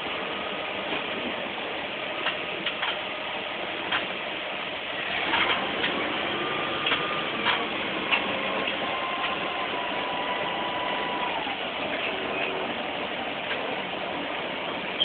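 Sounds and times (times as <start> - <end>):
steady rain hissing: 0.0 - 15.0
raindrops tapping on surfaces: 2.1 - 3.1, 3.8 - 4.3, 5.1 - 15.0.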